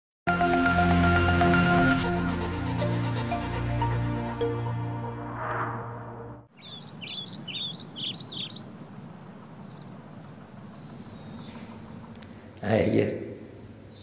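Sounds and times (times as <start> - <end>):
music: 0.3 - 6.5
bird chirping: 6.5 - 12.6, 13.4 - 14.0.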